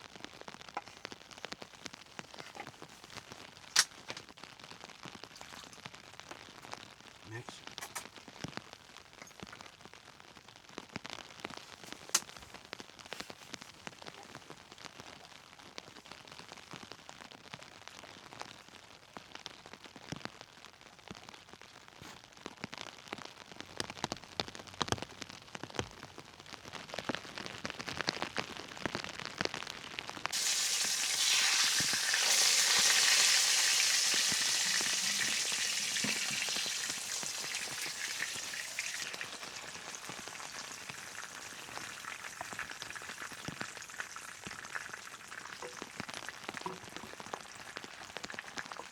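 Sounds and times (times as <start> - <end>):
food sizzling in a hot pan: 30.3 - 48.9
rain tapping: 30.3 - 48.9.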